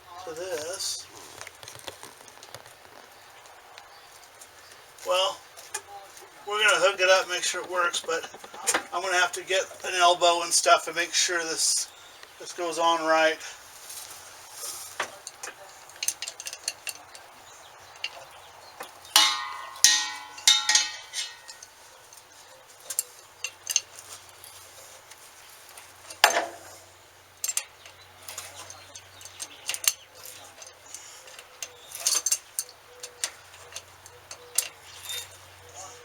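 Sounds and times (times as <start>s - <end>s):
metal fittings clinking: 14.6s - 36.0s
ringing metal clatter: 14.8s - 36.0s.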